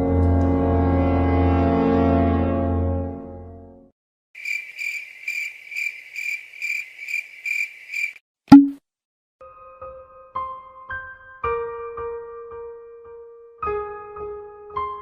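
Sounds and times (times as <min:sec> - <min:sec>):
high-pitched cricket-like chirps: 0:04.4 - 0:08.2.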